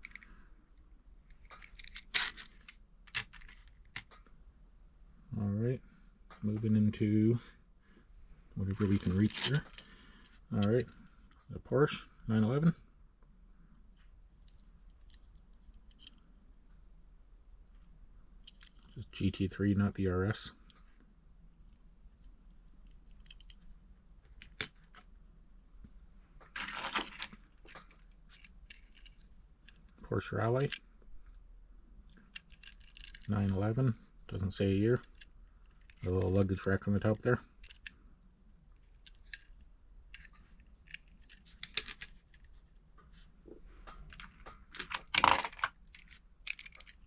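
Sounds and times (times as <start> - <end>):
light clicks of toy cars: 0.0 - 4.3, 14.0 - 16.2, 18.4 - 19.0, 21.7 - 23.7, 26.6 - 30.8, 32.1 - 33.6, 34.9 - 36.4, 37.0 - 38.0, 38.8 - 42.8, 43.8 - 47.0
plastic packaging clatter and rustle: 26.5 - 28.9.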